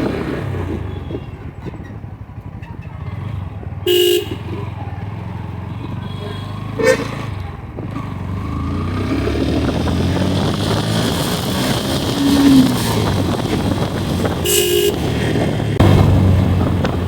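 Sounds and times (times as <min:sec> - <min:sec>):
motorcycle engine running: 0:00.0 - 0:17.0
vehicle horn toot: 0:03.8 - 0:04.6, 0:05.7 - 0:07.2, 0:14.3 - 0:15.2
wind noise on microphone: 0:08.9 - 0:17.0.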